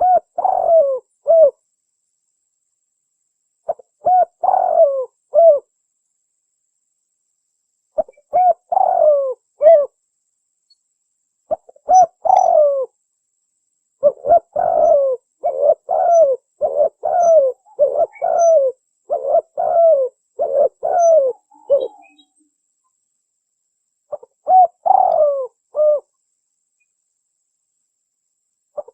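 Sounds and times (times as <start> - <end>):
dove cooing: 0.0 - 1.6, 3.7 - 5.7, 8.0 - 10.0, 11.5 - 12.9, 14.0 - 22.3, 24.1 - 26.1.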